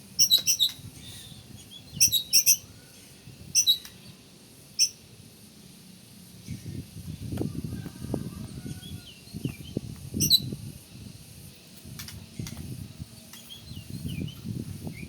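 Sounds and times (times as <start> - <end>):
magpie-robin chirping and whistling: 0.2 - 2.7, 3.6 - 3.9, 9.6 - 10.5.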